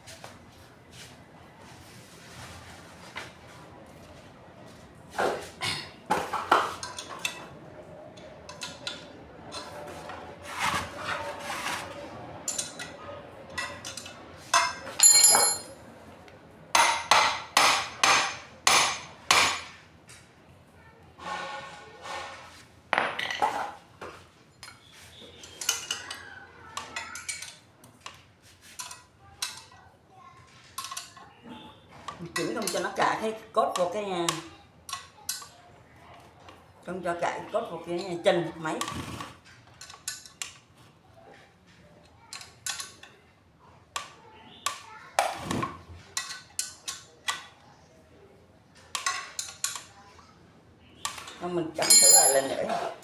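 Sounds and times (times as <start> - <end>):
metal tools clinking and scraping: 6.3 - 7.5, 12.4 - 15.8, 51.8 - 53.0
metal tools clinking and tapping: 6.8 - 7.5, 8.2 - 9.8, 12.4 - 15.8, 24.5 - 26.3, 26.9 - 28.2, 30.8 - 31.3, 39.7 - 40.7, 42.3 - 43.2, 49.0 - 49.9, 51.2 - 52.7.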